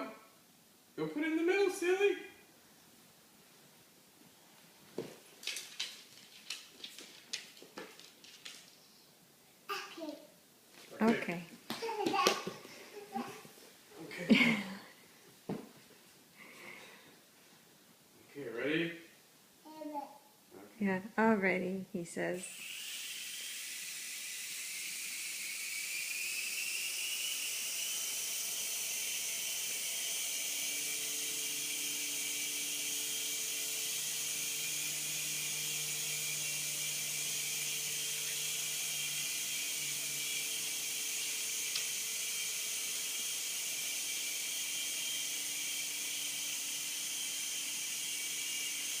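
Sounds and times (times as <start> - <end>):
toy helicopter motor whirring: 22.4 - 49.0.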